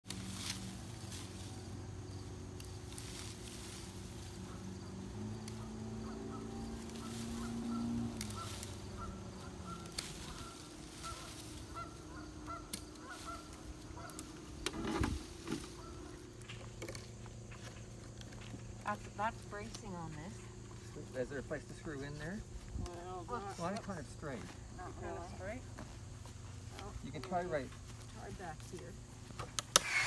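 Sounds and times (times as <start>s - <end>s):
birds honking: 2.5s - 17.6s.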